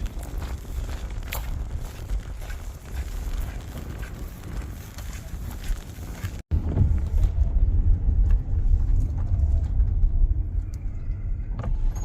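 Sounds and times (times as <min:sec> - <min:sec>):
vehicle rumbling on dirt track: 0:00.0 - 0:12.0.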